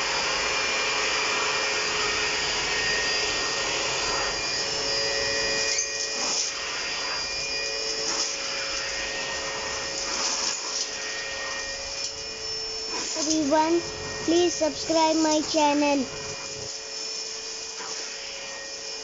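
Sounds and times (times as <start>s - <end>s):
vacuum cleaner motor whining: 0.0s - 19.0s.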